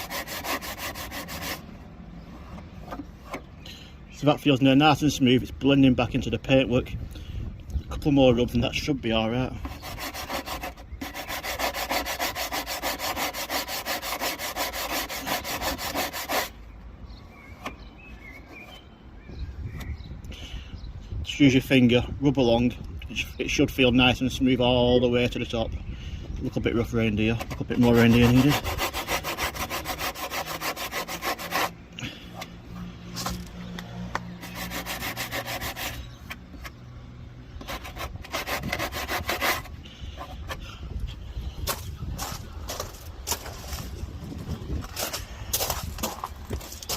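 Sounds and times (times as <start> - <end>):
sandpaper scrubbing car panel: 0.0 - 3.5, 9.3 - 16.6, 27.1 - 31.8, 34.2 - 36.8, 37.6 - 40.5.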